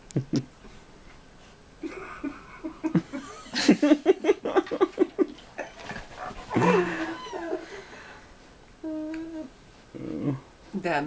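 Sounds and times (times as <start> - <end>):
people laughing: 1.8 - 7.9.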